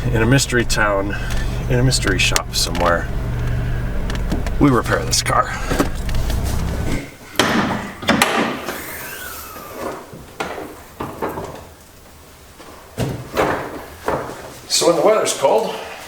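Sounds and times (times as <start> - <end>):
low engine hum: 0.0 - 7.2
sharp knocks and thuds: 5.6 - 8.8.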